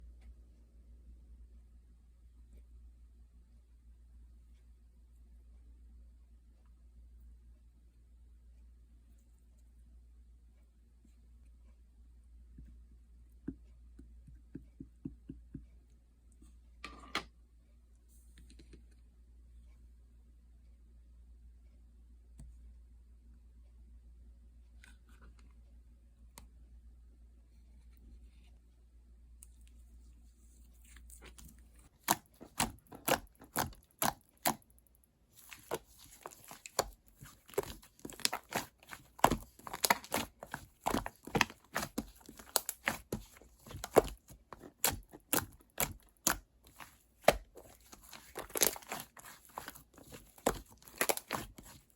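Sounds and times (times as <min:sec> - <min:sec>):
crackling squish of slime: 0:30.5 - 0:51.9.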